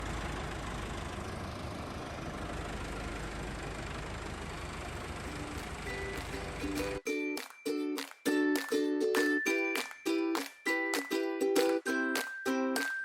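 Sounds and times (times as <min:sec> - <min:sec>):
tractor diesel engine idling: 0:00.0 - 0:07.0.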